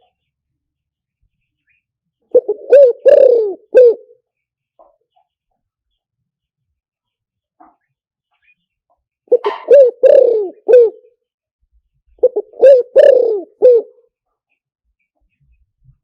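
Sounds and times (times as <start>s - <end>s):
dove cooing: 2.3s - 4.2s, 9.3s - 11.1s, 12.2s - 14.0s.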